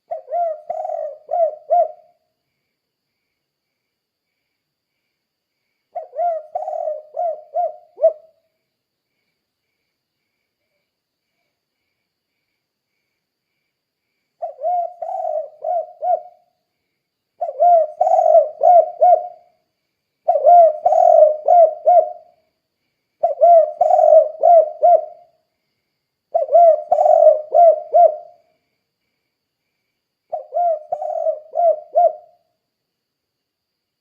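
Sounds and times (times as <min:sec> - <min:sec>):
dove cooing: 0:00.0 - 0:02.2, 0:06.0 - 0:08.4, 0:14.4 - 0:16.5, 0:17.4 - 0:19.5, 0:20.2 - 0:22.3, 0:23.2 - 0:25.3, 0:26.3 - 0:28.4, 0:30.3 - 0:32.4.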